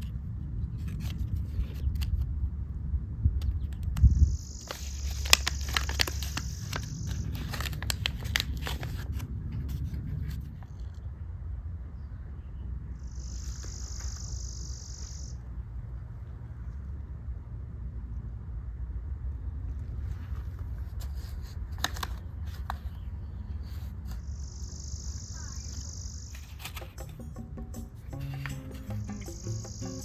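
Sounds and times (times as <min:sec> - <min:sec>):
handling clicks and rustles: 0:04.7 - 0:10.9
high insect buzz: 0:28.2 - 0:30.0.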